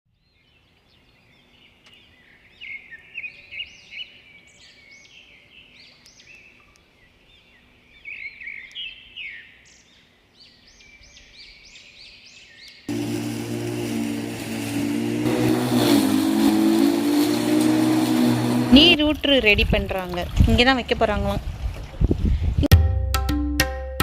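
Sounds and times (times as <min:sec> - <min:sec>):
small birds chirping and singing: 0:00.1 - 0:12.9.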